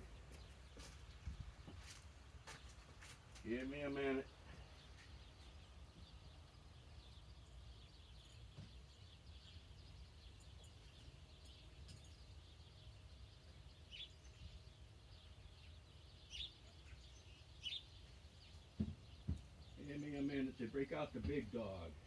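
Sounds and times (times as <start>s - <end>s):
small bird chirps: 4.5s - 20.4s.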